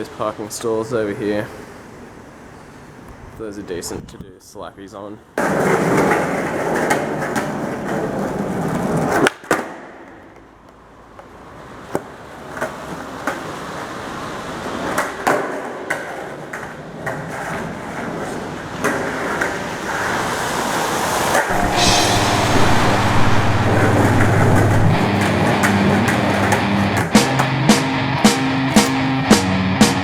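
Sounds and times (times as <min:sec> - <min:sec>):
skateboard wheels rolling on concrete: 0:00.0 - 0:30.0
skateboard clacks: 0:05.3 - 0:21.5, 0:23.9 - 0:30.0.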